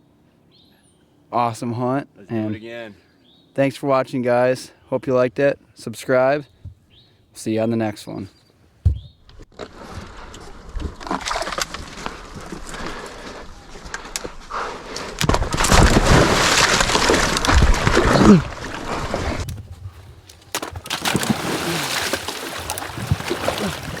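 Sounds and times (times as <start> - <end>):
water splashing and sloshing: 9.5 - 13.4, 15.1 - 24.0.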